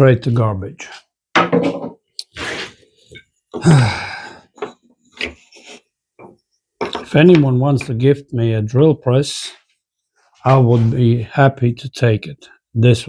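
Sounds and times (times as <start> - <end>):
man grunting: 3.6 - 4.2
man exhaling: 3.6 - 4.5
man sighing: 3.6 - 4.5.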